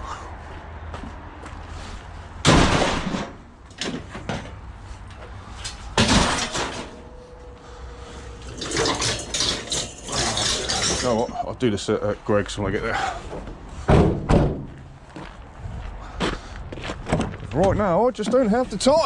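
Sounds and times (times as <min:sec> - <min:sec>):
loud bangs of scrap metal: 0:02.4 - 0:04.6, 0:05.9 - 0:07.3, 0:08.4 - 0:11.2, 0:13.8 - 0:14.8
scrap clattering: 0:05.6 - 0:07.2, 0:08.2 - 0:11.4.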